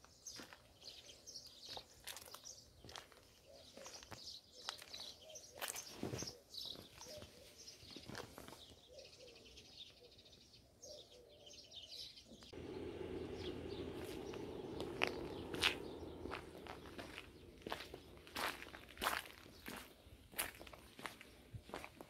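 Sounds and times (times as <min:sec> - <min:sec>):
small birds chirping: 0:00.0 - 0:22.0
steady low noise: 0:12.5 - 0:20.4.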